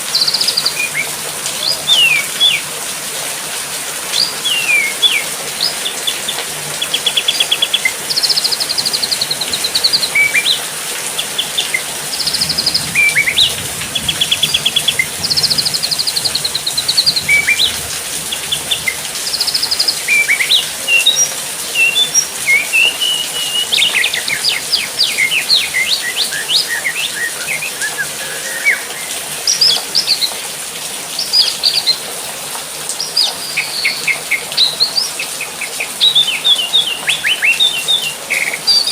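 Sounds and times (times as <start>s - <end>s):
steady hiss: 0.0s - 36.0s
songbirds chirping: 4.0s - 38.9s.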